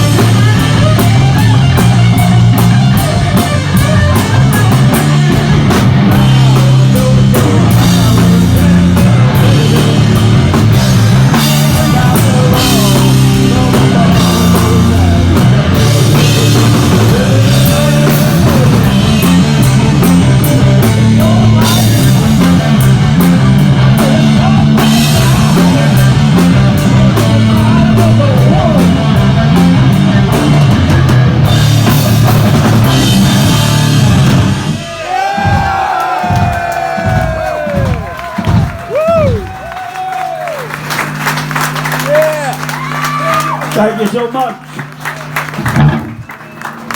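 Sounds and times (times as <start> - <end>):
doom metal band playing: 0.0 - 46.7.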